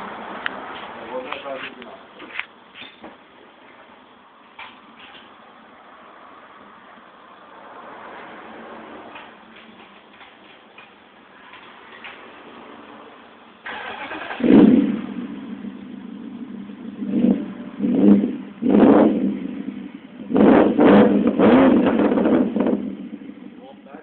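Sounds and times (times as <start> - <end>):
car engine starting and idling: 6.7 - 24.0
engine throttle blips: 13.6 - 23.6.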